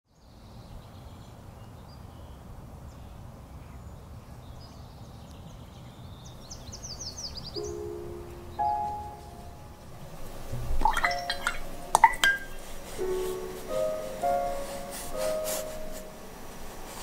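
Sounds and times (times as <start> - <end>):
birds chirping: 0.3 - 13.5
clear ringing notes: 7.6 - 10.1, 10.8 - 16.5.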